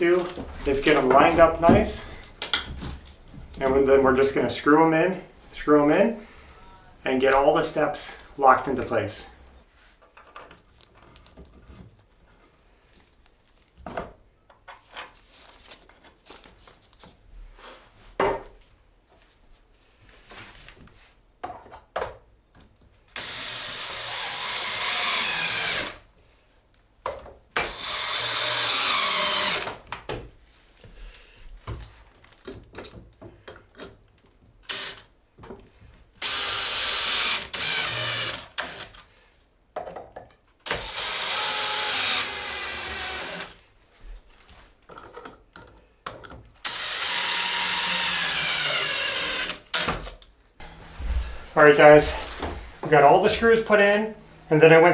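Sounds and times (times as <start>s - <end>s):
parts knocking and clicking: 0.1s - 3.6s
power drill driving screws: 23.2s - 26.0s, 27.6s - 29.8s, 34.7s - 35.1s, 36.2s - 39.0s, 40.7s - 43.6s, 46.6s - 52.8s.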